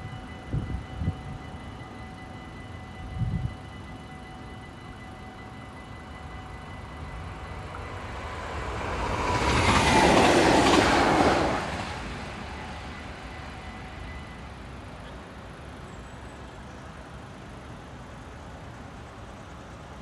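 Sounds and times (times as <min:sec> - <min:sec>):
electric train passing: 0:00.0 - 0:20.0.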